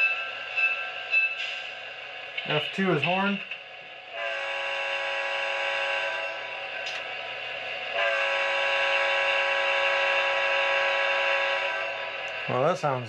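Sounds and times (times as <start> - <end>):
locomotive horn through speaker: 4.2 - 6.5, 8.0 - 12.0.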